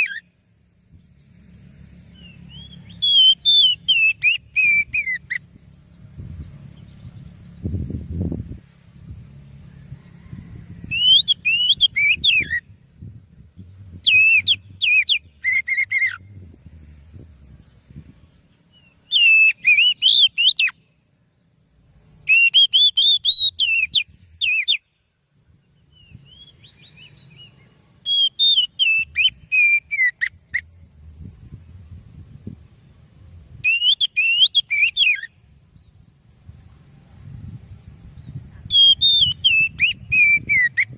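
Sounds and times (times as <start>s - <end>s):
bird singing whistled phrases: 0.0s - 0.3s, 2.2s - 5.4s, 10.8s - 12.7s, 14.0s - 16.3s, 18.7s - 20.9s, 22.2s - 24.9s, 25.9s - 30.7s, 33.1s - 36.1s, 38.6s - 40.9s
faint low rumble: 0.3s - 11.4s, 12.6s - 19.2s, 30.3s - 33.6s, 35.3s - 40.1s.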